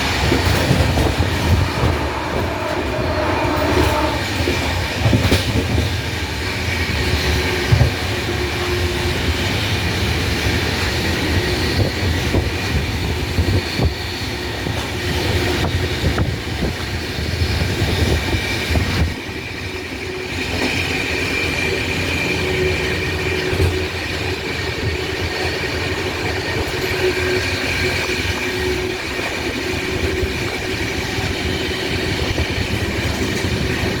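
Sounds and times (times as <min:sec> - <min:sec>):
train rumbling on track: 0:00.0 - 0:34.0.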